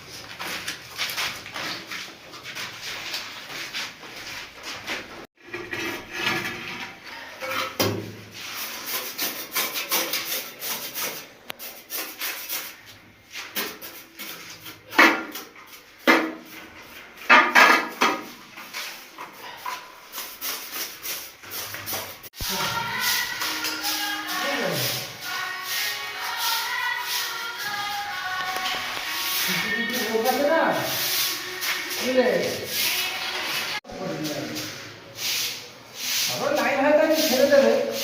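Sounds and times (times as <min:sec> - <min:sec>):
hand tool scraping a surface: 0:08.4 - 0:16.6.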